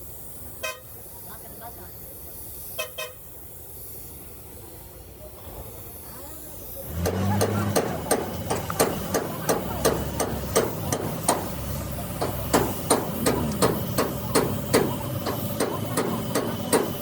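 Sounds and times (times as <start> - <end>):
hammer blows on metal: 6.9 - 17.0.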